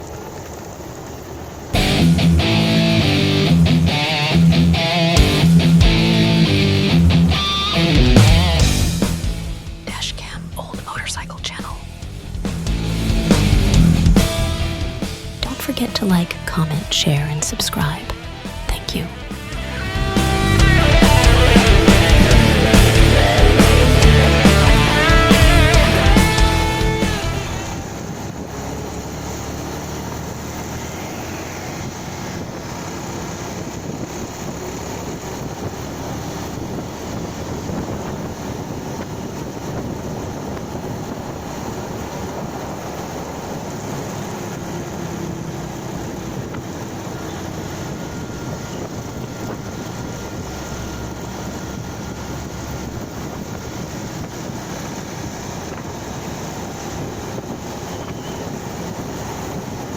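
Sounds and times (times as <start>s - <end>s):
motorcycle engine running: 0.0s - 10.9s, 11.8s - 17.0s, 17.6s - 59.9s
wind rush on microphone: 26.0s - 59.9s.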